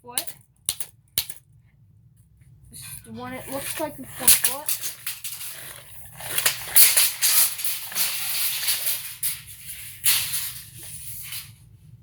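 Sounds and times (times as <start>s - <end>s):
tape measure blade scraping: 3.5s - 11.5s.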